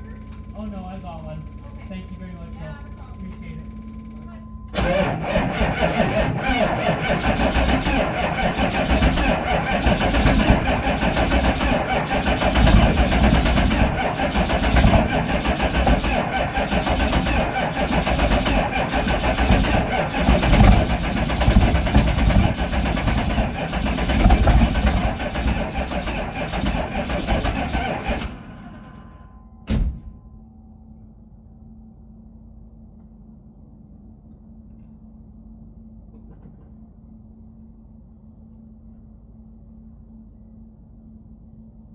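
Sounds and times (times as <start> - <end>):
diesel engine running unevenly: 4.7 - 30.1.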